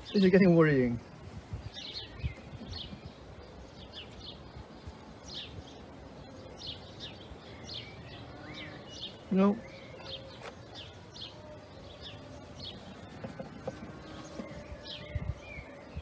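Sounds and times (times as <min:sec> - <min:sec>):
small birds chirping: 0:00.0 - 0:16.0
cardboard egg trays rustling: 0:09.2 - 0:15.8.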